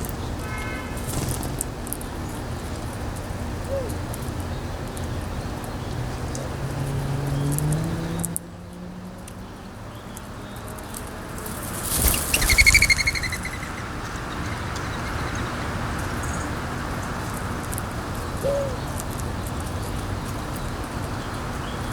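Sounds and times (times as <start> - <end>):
wind: 0.0 - 21.9
low engine hum: 1.2 - 18.2
rapidly pulsed bird call: 11.6 - 15.4.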